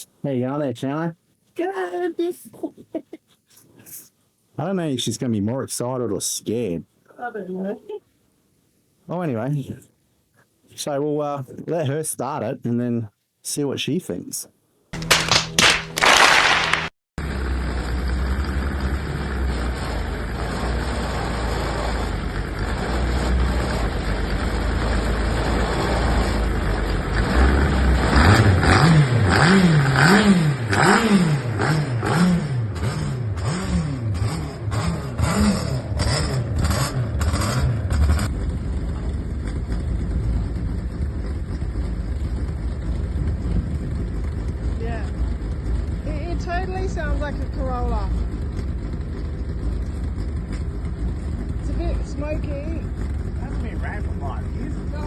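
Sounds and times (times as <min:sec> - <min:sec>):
car engine idling and revving: 0:17.2 - 0:55.0.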